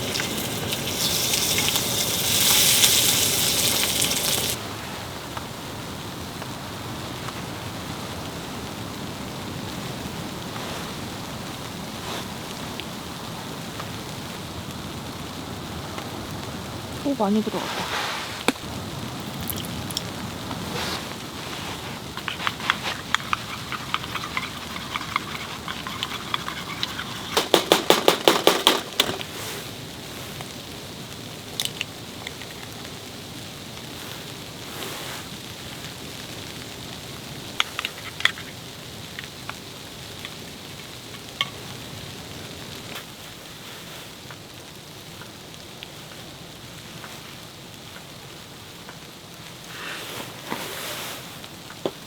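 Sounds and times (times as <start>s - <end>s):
food sizzling in a hot pan: 0.0s - 4.7s, 16.2s - 27.7s.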